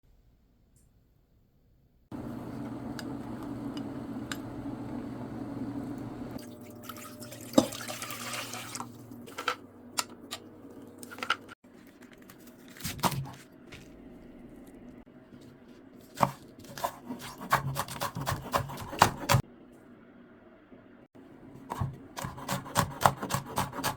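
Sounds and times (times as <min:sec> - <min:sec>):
water running: 0:02.1 - 0:11.6
water splashing and dripping: 0:06.4 - 0:09.1.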